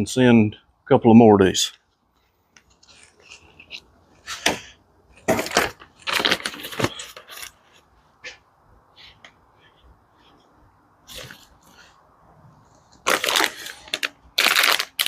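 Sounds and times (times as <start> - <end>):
packaging rustling and clattering: 5.2 - 7.9, 12.8 - 15.0.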